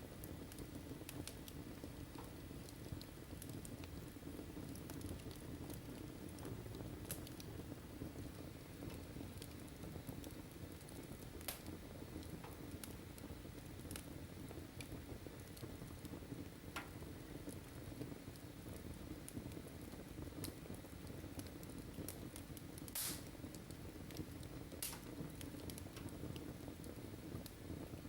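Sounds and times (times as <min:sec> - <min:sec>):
wood fire crackling: 0:00.0 - 0:28.0
fire pops: 0:00.1 - 0:28.0.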